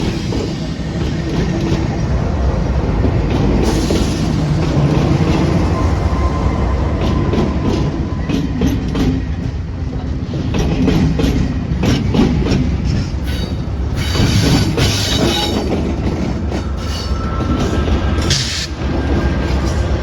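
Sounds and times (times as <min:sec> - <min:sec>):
train wheels clacking over rail joints: 0:07.0 - 0:20.0
high wheel squeal: 0:16.6 - 0:20.0.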